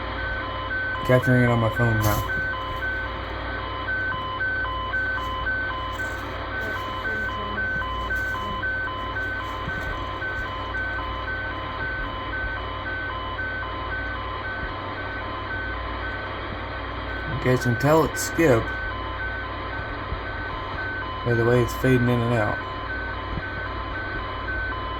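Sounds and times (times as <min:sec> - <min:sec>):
radio hiss: 0:01.0 - 0:03.1, 0:05.0 - 0:11.0, 0:17.2 - 0:18.8
short radio beeps: 0:01.0 - 0:03.2, 0:17.2 - 0:18.8.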